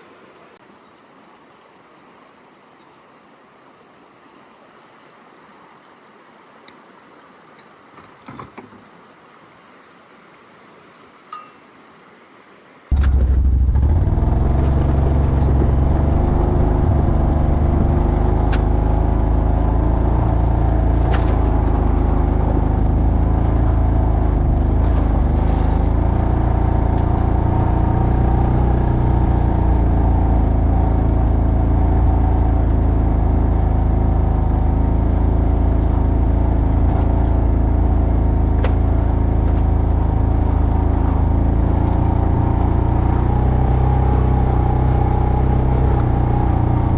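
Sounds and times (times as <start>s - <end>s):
atv engine running: 12.9s - 46.9s.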